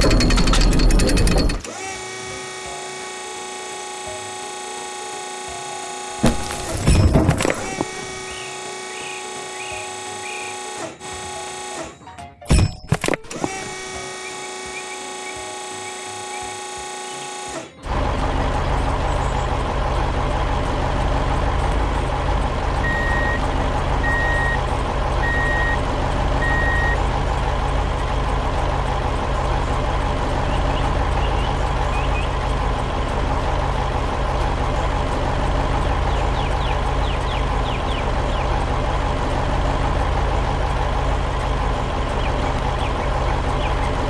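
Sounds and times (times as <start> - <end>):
truck engine rumbling: 0.0 - 1.7, 17.8 - 44.0
truck reversing alarm beeps: 22.8 - 27.2.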